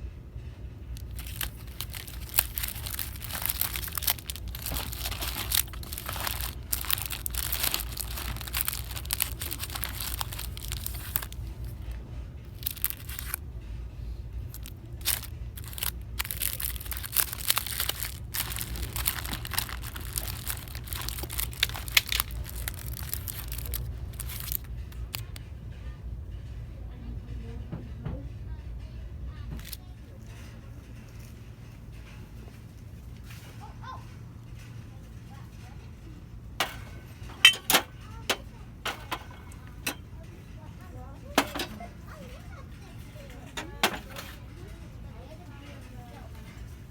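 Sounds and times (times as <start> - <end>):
plastic packaging crinkling: 0.9 - 13.4, 14.5 - 25.2, 36.6 - 40.1, 41.4 - 42.3, 43.5 - 44.5.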